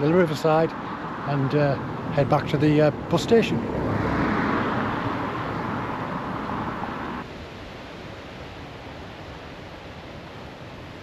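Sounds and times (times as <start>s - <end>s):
road traffic noise: 0.0s - 7.3s.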